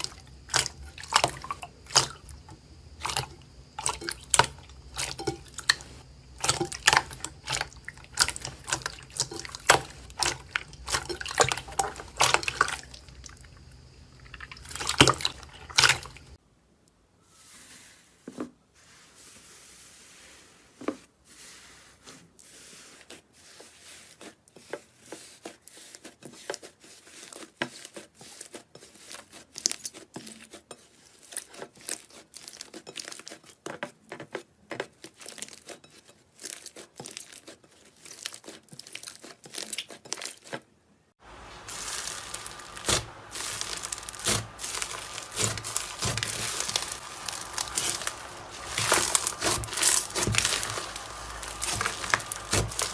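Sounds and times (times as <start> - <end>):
crunchy material crackling: 41.2 - 52.9.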